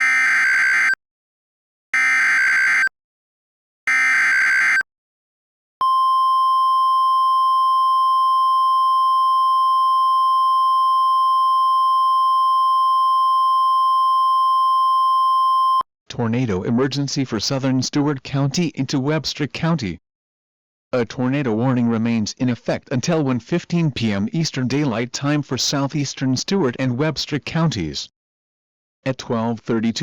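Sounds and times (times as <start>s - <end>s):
steady warning alarm tone: 0.0s - 1.0s, 2.0s - 2.9s, 3.9s - 4.8s.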